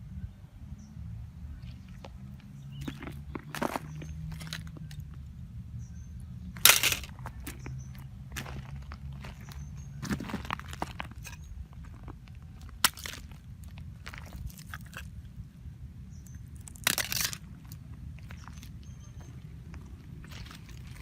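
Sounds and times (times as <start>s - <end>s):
short crunching clatter: 6.6s - 7.7s.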